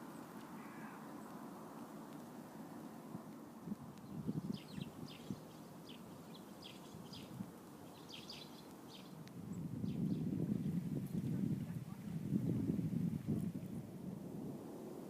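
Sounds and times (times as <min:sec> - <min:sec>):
birds chirping: 0:00.0 - 0:01.9, 0:04.0 - 0:10.8
wind rumbling on microphone: 0:03.1 - 0:15.0.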